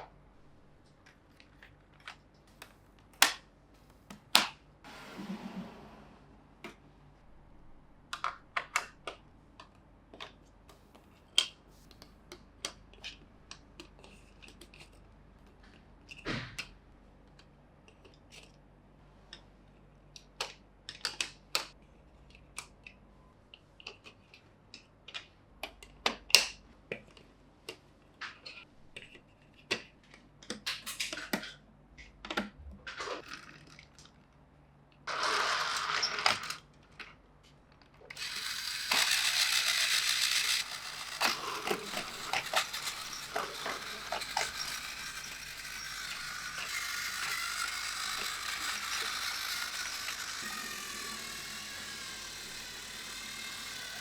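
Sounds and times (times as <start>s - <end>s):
plastic toy track clicking: 35.1s - 36.6s, 38.0s - 54.0s
plastic scraping rustles: 38.2s - 50.9s.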